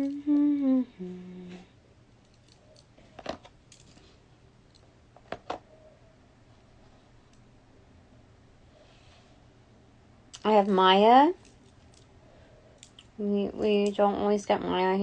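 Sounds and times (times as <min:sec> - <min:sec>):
person humming two notes: 0:00.0 - 0:01.7.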